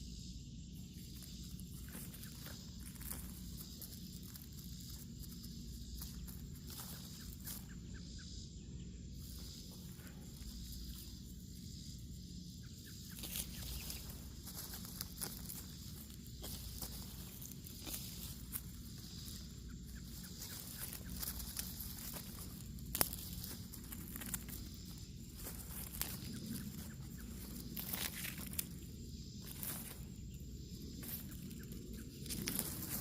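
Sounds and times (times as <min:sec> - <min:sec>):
rustling: 0:00.7 - 0:08.0, 0:09.1 - 0:33.0
footsteps: 0:13.2 - 0:28.8.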